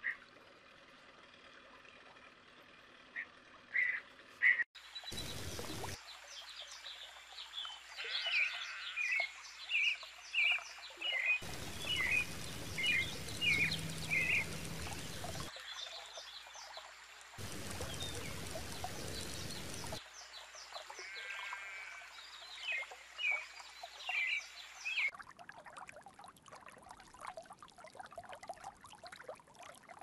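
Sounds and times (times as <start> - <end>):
bird chirping repeated notes: 11.4 - 15.5
steady hissing noise: 11.4 - 15.5, 17.4 - 20.0.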